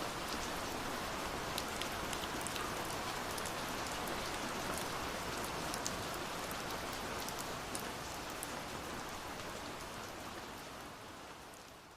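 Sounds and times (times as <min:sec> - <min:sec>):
steady rainfall: 0:00.0 - 0:11.9.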